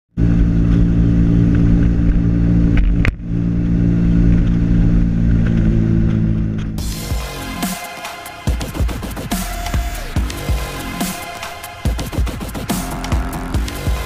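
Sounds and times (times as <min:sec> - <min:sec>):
road and wind noise: 0:00.1 - 0:07.6
small motorcycle engine running: 0:00.1 - 0:07.7.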